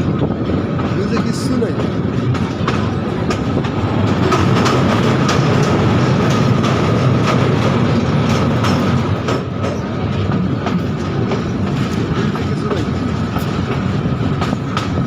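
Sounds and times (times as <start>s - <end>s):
train wheels rumbling on rails: 0.0s - 15.0s
wheels clicking over rail joints: 0.0s - 15.0s.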